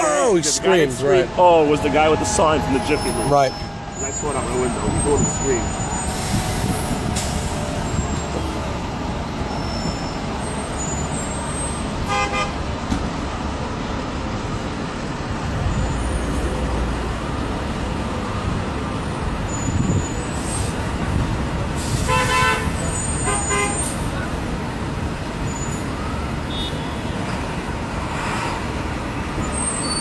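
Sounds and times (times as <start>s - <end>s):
street traffic noise: 0.0s - 30.0s
vehicle horn: 12.0s - 12.6s, 22.0s - 23.8s, 26.5s - 27.2s.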